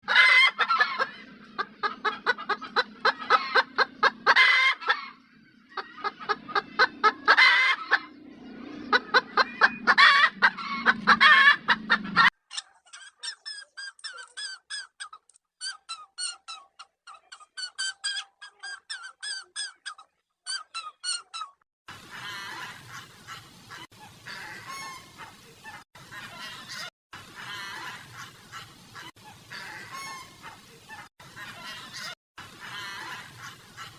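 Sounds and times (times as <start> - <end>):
fowl calling: 0.0 - 8.2, 8.9 - 14.7, 22.1 - 33.9
birds chirping: 0.4 - 33.9.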